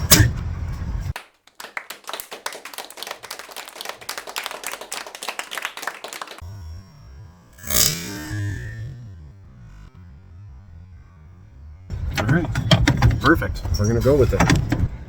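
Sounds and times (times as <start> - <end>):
plastic knocking and clicking: 12.2 - 13.3.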